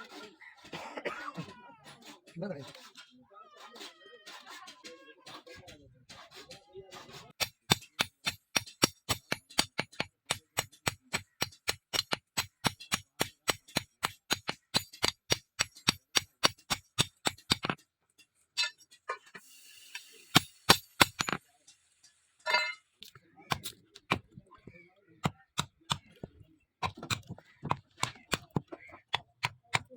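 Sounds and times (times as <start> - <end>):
hammer striking steel: 7.4 - 17.7, 20.3 - 21.4.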